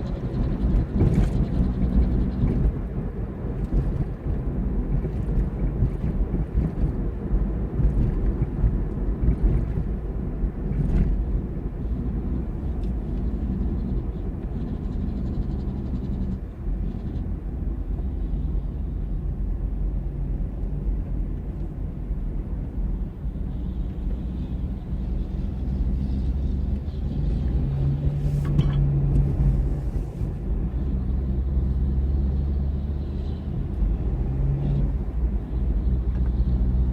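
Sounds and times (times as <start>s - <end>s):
heavy vehicle engine rumble: 0.0s - 36.9s
road noise: 0.0s - 36.9s.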